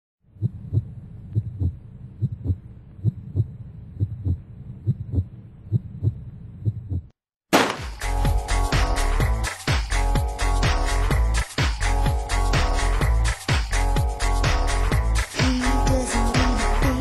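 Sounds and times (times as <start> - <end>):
heartbeat thumps: 0.4 - 7.2
disco dance music: 8.0 - 17.0.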